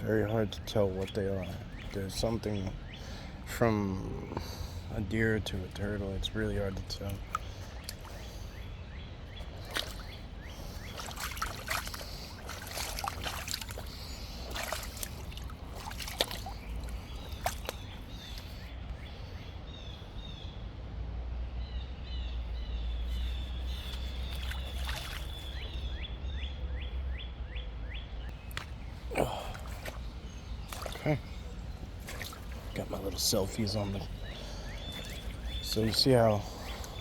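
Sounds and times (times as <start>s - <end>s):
bird singing: 0.0s - 20.8s, 21.4s - 37.0s
footsteps splashing through water: 7.0s - 8.4s, 9.4s - 18.6s, 23.6s - 25.9s, 28.3s - 37.0s.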